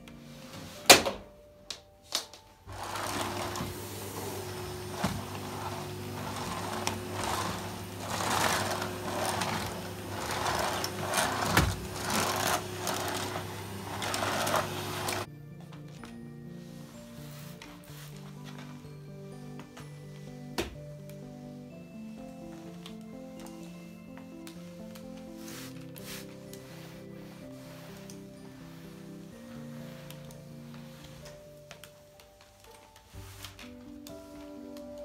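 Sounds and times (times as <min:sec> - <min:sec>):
swishing back and forth: 0:02.7 - 0:15.3.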